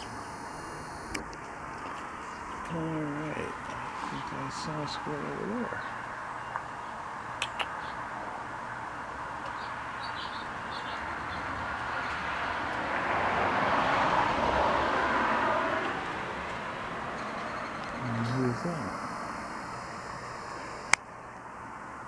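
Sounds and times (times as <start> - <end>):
vehicle passing: 0.0 - 22.0
sharp clicks: 7.4 - 7.8
faint bird chirps: 17.2 - 20.9.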